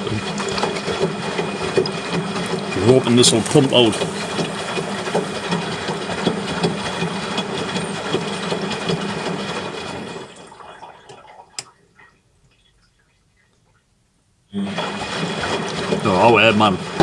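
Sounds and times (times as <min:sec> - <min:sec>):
washing machine water sloshing: 0:01.4 - 0:08.4.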